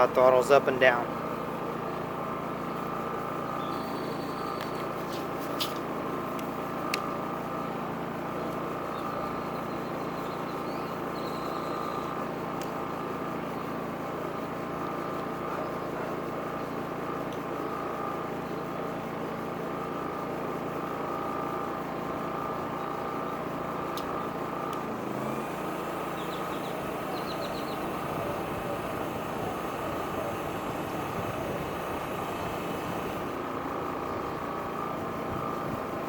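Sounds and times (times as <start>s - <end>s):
generator engine running: 0.0s - 36.0s
sharp clicks: 23.9s - 24.9s.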